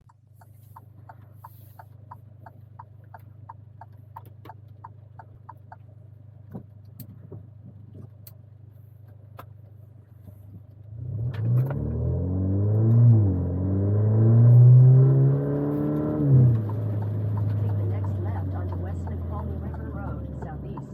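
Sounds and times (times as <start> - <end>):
light regular ticking: 0.0 - 7.1, 15.4 - 20.9
car engine running: 0.0 - 20.9
engine revving: 10.9 - 20.9.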